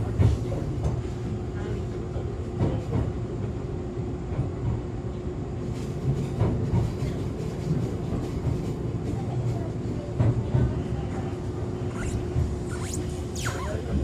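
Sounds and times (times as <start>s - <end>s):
wheels rumbling on rail: 0.0s - 14.0s
steady hum: 11.8s - 14.0s.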